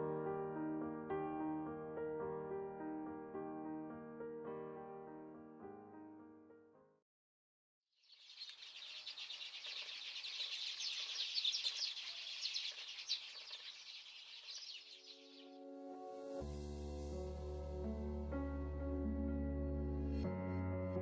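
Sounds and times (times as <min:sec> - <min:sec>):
flock of sparrows chirping: 0:08.1 - 0:15.6.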